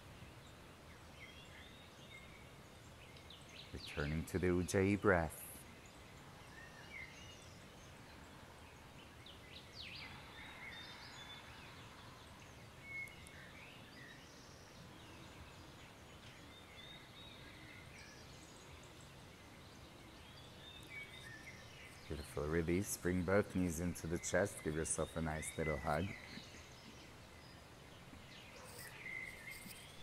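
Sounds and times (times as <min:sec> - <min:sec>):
faint bird chirps: 0:00.0 - 0:30.0
low steady background noise: 0:00.0 - 0:30.0.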